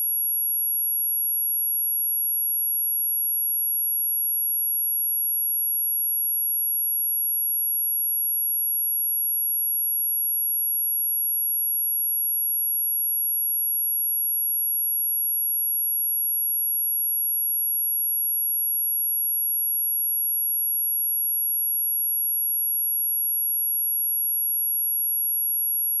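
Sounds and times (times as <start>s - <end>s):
high-pitched sine test tone: 20.0s - 26.0s.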